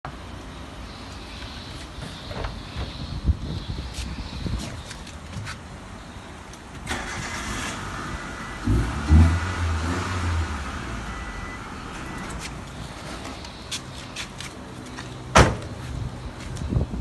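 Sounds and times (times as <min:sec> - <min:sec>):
car engine starting and idling: 0:06.6 - 0:13.6.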